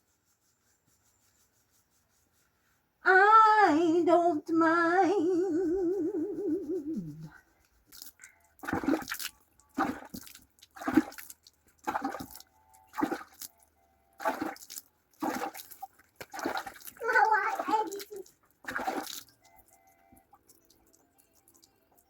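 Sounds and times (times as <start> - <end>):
water splashing: 7.9 - 13.5, 14.2 - 21.7.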